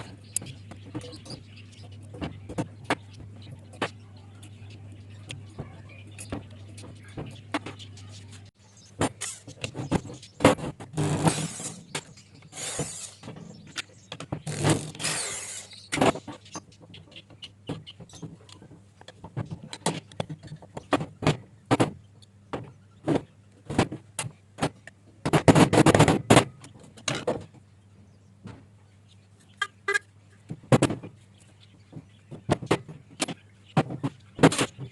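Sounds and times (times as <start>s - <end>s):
scraping of metal parts: 5.5s - 16.6s.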